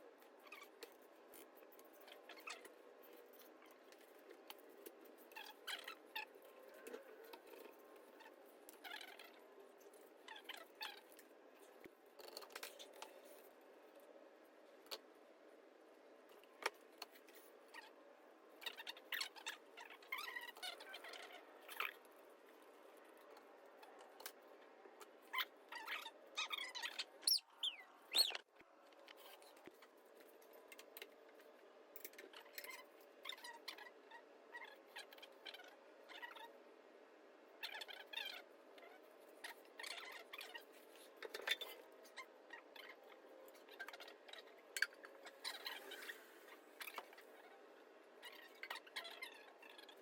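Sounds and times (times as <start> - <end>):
squeaky gliding chirps: 25.8 - 28.5.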